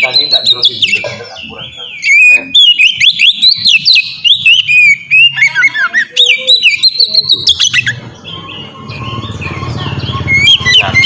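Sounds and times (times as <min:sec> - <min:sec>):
bird singing whistled notes: 0:00.0 - 0:11.0.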